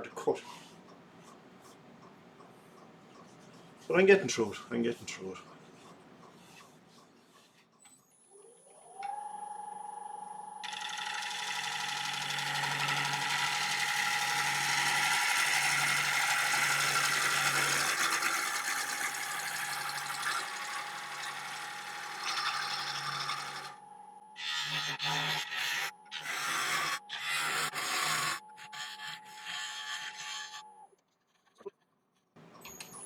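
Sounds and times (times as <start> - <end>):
wood lathe motor whine: 8.7 - 30.9.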